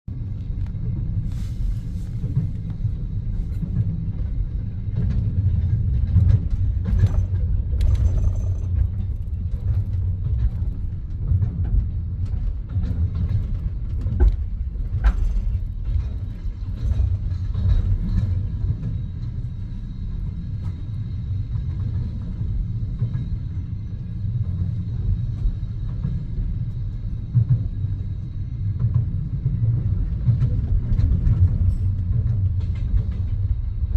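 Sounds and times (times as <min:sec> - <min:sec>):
train rumbling inside carriage: 0:00.0 - 0:33.9.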